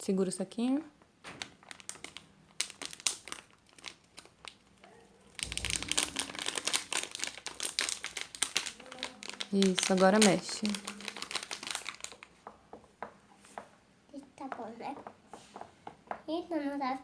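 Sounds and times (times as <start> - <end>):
plastic bag crinkling: 1.2 - 12.5.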